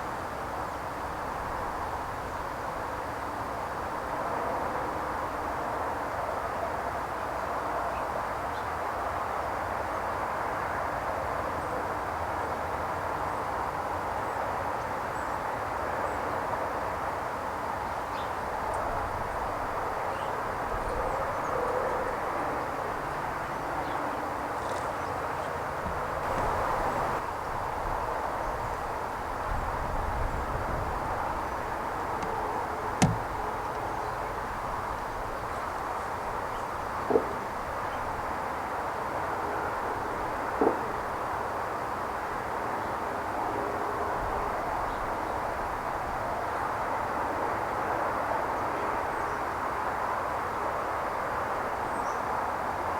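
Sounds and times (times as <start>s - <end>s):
sharp click: 33.0s - 33.9s.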